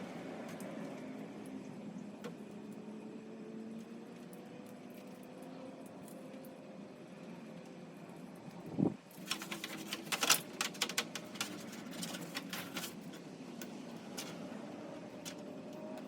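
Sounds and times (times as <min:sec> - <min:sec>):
plugs clicking and rattling: 0:09.1 - 0:14.4.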